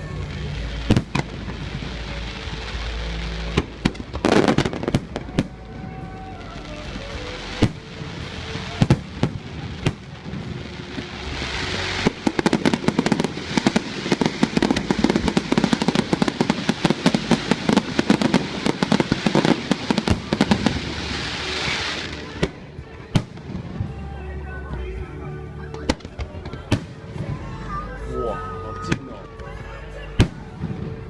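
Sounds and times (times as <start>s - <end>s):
fireworks bangs: 0.0s - 24.1s
rapid fireworks crackle: 0.0s - 31.0s.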